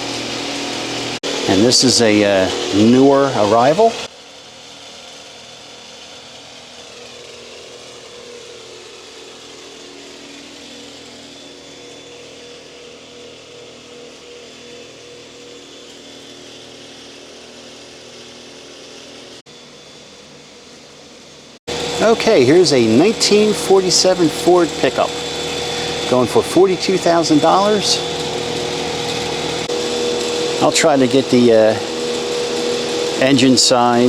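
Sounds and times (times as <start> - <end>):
machinery hum and hiss: 0.0 - 4.1, 20.8 - 34.0.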